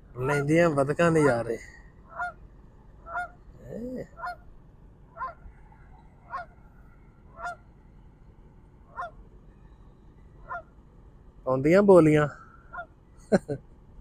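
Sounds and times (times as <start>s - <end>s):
waterfowl honking: 0.3s - 2.4s, 3.0s - 4.4s, 5.1s - 5.4s, 6.2s - 7.7s, 8.8s - 9.3s, 10.4s - 10.8s, 12.4s - 13.0s
lower bending waterfowl call: 1.1s - 2.4s, 3.0s - 4.4s, 5.1s - 7.7s, 8.8s - 9.2s, 10.4s - 10.8s, 12.3s - 13.0s.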